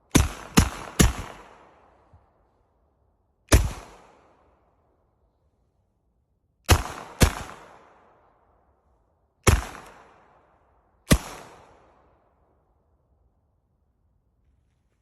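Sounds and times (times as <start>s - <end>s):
pistol shots with echo: 0.1s - 2.0s, 3.5s - 4.4s, 6.7s - 8.2s, 9.4s - 12.1s.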